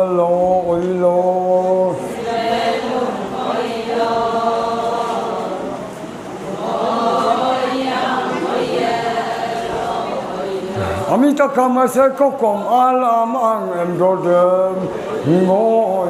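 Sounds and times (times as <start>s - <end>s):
group chanting in unison: 1.9s - 5.8s, 6.5s - 11.2s.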